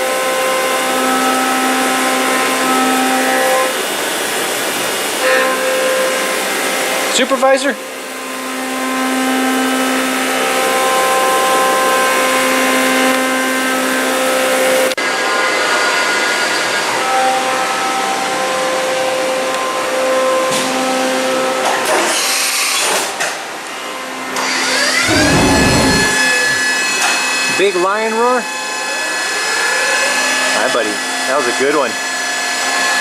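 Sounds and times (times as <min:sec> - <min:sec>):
motor humming: 0:24.9 - 0:26.7
low pitch-bending sound: 0:25.0 - 0:26.7.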